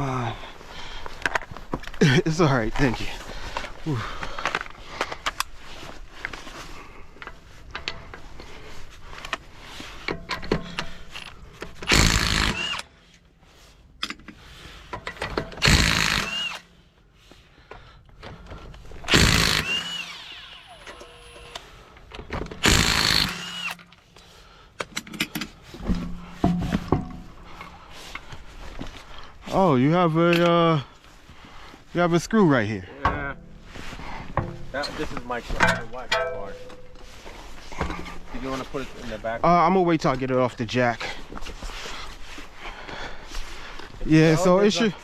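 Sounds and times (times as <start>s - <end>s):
impact wrench bursts: 11.8s - 12.9s, 15.4s - 16.7s, 19.0s - 21.7s, 22.5s - 23.9s.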